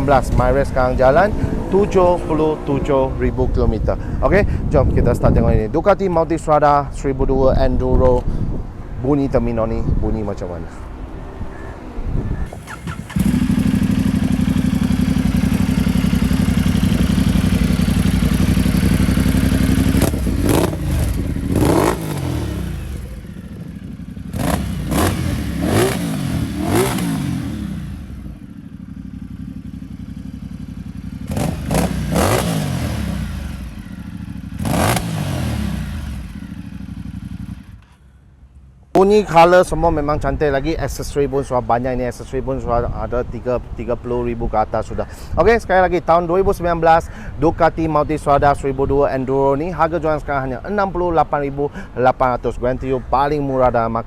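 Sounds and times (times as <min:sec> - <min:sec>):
motorcycle engine idling and revving: 0:12.4 - 0:38.8.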